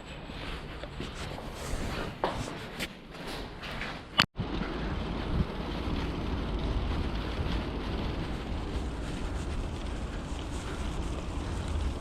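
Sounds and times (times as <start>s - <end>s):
wind buffeting microphone: 4.4s - 12.0s.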